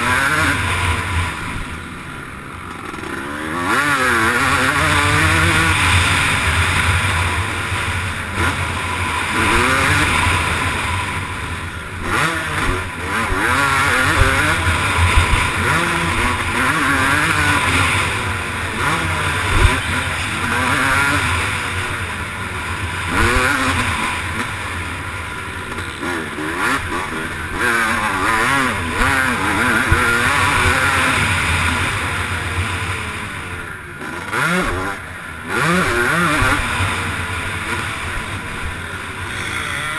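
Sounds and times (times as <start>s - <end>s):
motocross bike engine revving: 0.0s - 39.9s
rushing wind: 4.7s - 25.6s.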